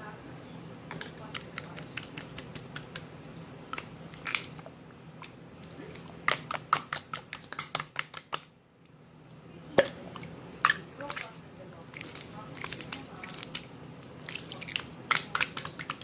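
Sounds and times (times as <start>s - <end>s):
slime clicking and popping: 6.3s - 8.5s.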